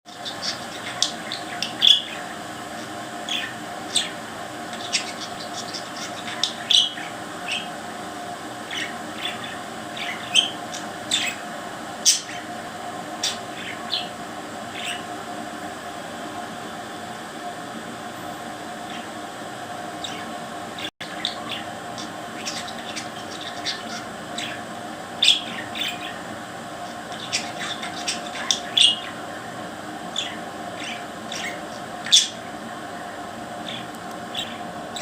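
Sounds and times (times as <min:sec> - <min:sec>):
parrot chirping and squawking: 0:00.1 - 0:07.8, 0:08.6 - 0:15.2, 0:18.8 - 0:19.2, 0:20.0 - 0:29.3, 0:30.1 - 0:32.6, 0:33.6 - 0:35.0
steady hum: 0:00.1 - 0:35.0.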